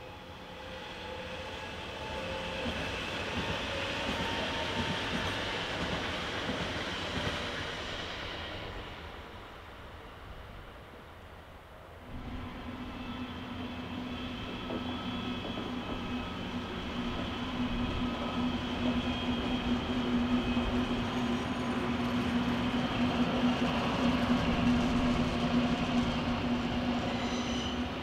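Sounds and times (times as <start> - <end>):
electric train passing: 0.0 - 11.4, 12.0 - 28.0
diesel locomotive engine drone: 0.0 - 28.0
train rolling on rails: 0.0 - 28.0.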